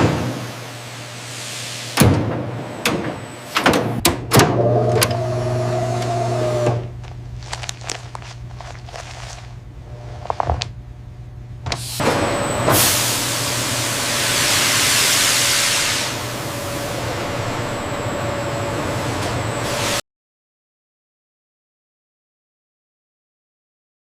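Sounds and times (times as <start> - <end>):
machine hum: 4.3 - 20.0
hiss of escaping air: 14.1 - 16.2.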